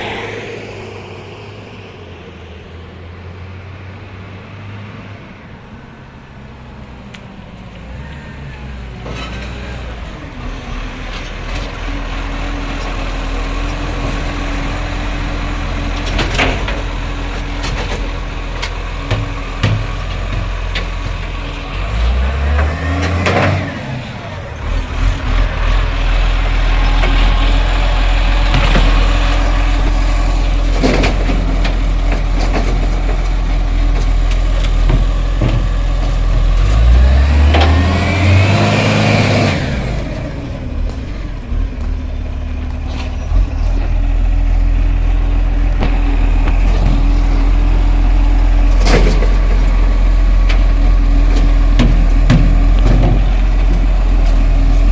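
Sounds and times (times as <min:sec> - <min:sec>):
garbage truck engine revving: 0:06.4 - 0:54.9.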